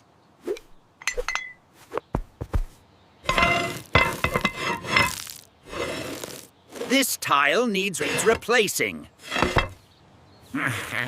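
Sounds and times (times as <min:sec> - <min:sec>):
roof tiles clinking: 0:03.3 - 0:06.4.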